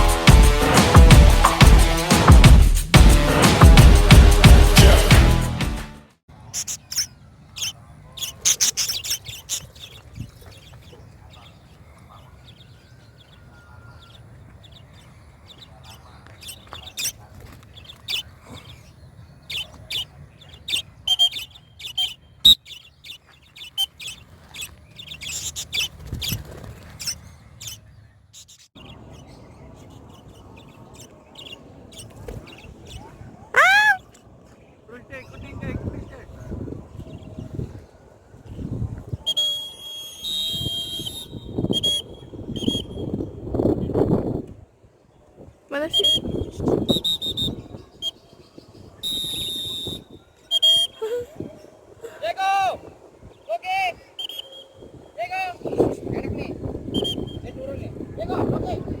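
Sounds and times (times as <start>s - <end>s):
budgerigar chirping: 6.5s - 34.0s, 49.0s - 51.1s, 54.2s - 54.7s.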